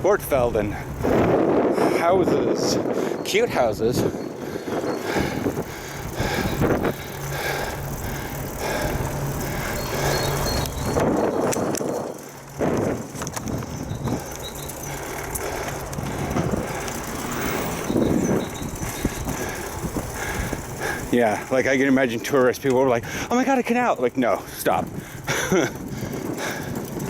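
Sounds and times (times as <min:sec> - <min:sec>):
bicycle rolling noise: 0:00.0 - 0:27.0
wind buffeting microphone: 0:00.0 - 0:27.0
steady low hum: 0:04.0 - 0:21.6.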